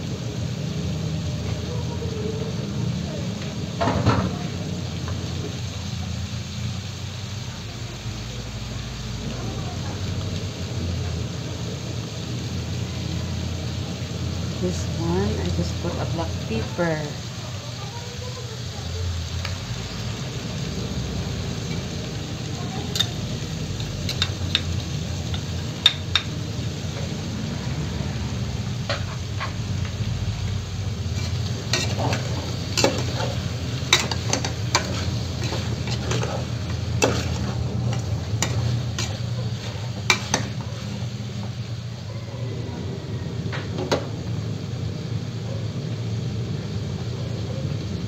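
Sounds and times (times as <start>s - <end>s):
chicken sizzling in oil: 0.0s - 48.0s
spoon clinking and scraping pot: 24.0s - 24.7s, 31.1s - 41.0s.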